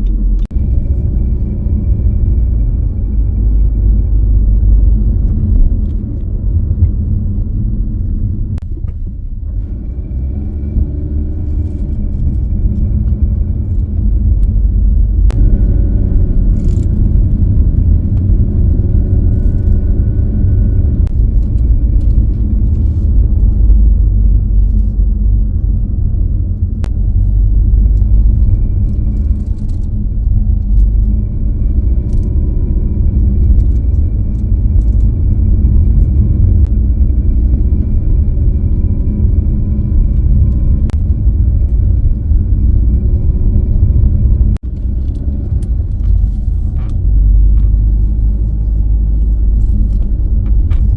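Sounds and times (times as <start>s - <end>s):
car engine and road noise: 0.0s - 50.9s.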